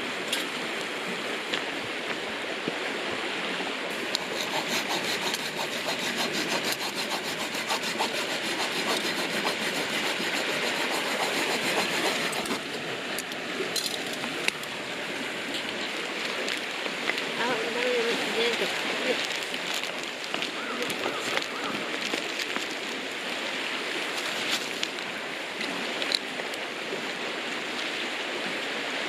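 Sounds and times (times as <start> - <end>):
hand saw cutting wood: 3.9 - 12.7.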